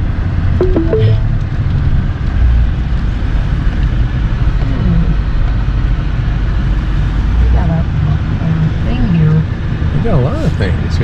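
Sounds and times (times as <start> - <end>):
engine and road rumble: 1.4 - 11.0.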